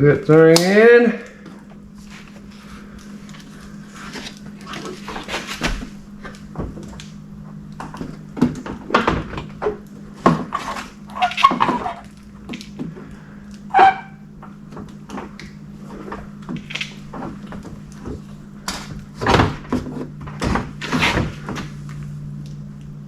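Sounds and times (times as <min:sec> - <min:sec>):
steady low hum: 0:00.0 - 0:23.0
short squeak: 0:11.1 - 0:12.1, 0:13.7 - 0:14.2.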